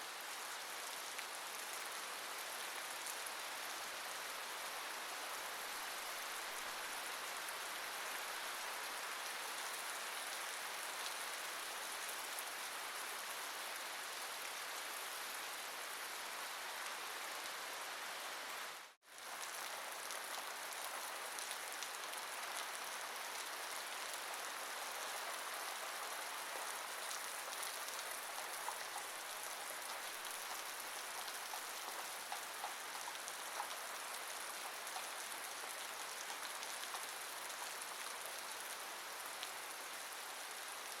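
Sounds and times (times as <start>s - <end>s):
steady rain falling: 0.0s - 41.0s
rain drop ticks: 29.8s - 35.2s.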